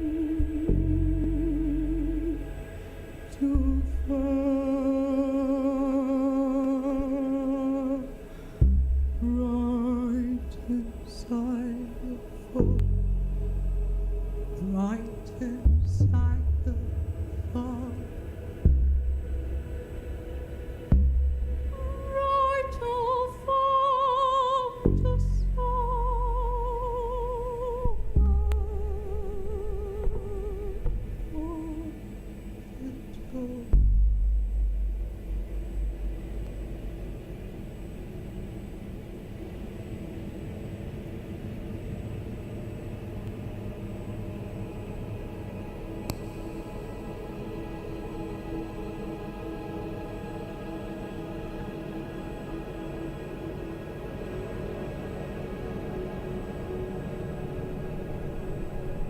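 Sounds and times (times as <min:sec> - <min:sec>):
woman singing wordless notes: 0:00.0 - 0:08.5, 0:09.1 - 0:18.4, 0:21.7 - 0:34.0
deep low drone: 0:00.0 - 0:59.0.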